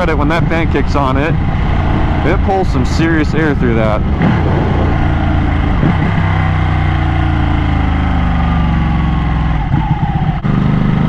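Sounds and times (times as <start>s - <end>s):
motorcycle engine slowing down: 3.5s - 9.2s.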